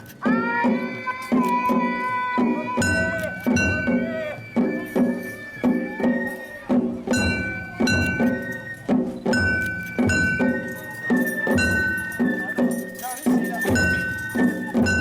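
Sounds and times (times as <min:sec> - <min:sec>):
flute tones: 0:00.1 - 0:15.0
drum strikes: 0:00.2 - 0:15.0
clanging metal hits: 0:06.8 - 0:15.0.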